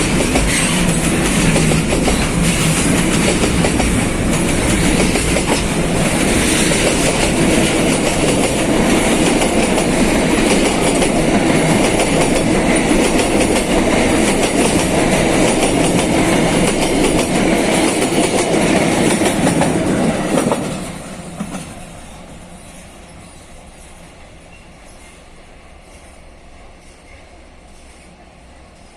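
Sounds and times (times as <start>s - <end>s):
freight train wagons rolling: 0.0s - 28.9s.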